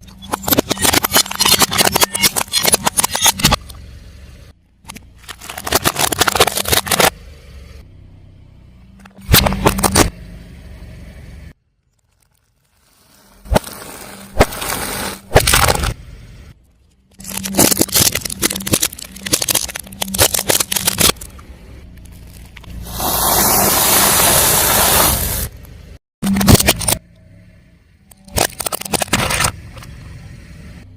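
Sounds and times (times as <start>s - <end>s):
car engine running: 0.0s - 11.6s, 13.6s - 30.9s
tyre crunching objects: 5.2s - 7.1s, 11.9s - 16.0s, 17.1s - 21.4s.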